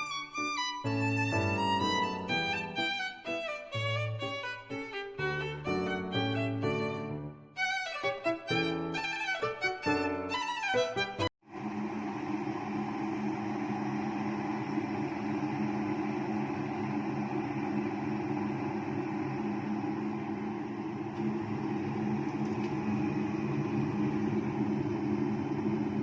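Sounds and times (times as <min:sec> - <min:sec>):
electric kettle heating water: 0:11.4 - 0:26.0.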